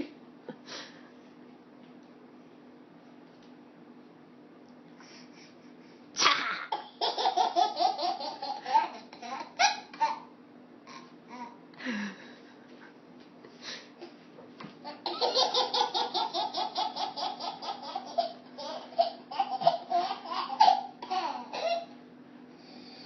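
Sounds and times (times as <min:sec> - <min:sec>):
baby laughing: 0:06.2 - 0:10.3, 0:14.8 - 0:22.0.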